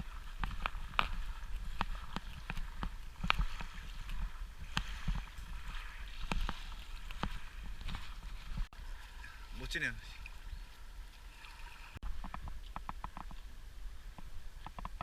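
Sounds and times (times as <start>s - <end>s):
paddle splashing water: 0.0s - 15.0s.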